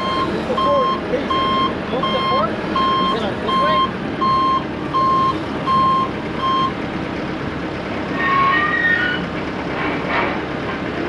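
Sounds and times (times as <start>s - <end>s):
backup alarm beeping: 0.0s - 6.8s
diesel engine running: 0.0s - 11.0s.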